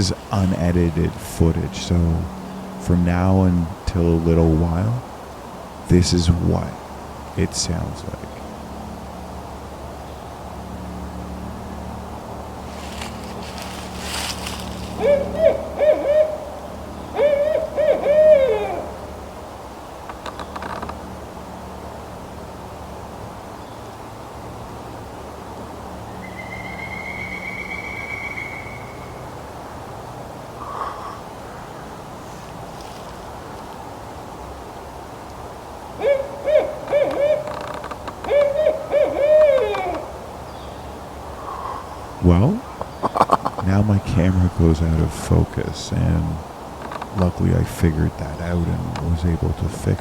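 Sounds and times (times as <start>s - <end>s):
owl hooting: 0.0s - 5.1s, 12.7s - 19.4s, 26.0s - 29.8s, 30.5s - 31.9s, 35.9s - 50.0s.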